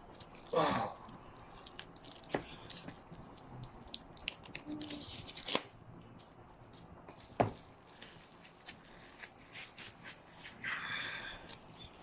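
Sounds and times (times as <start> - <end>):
paper and plastic crinkling: 1.5 - 10.6.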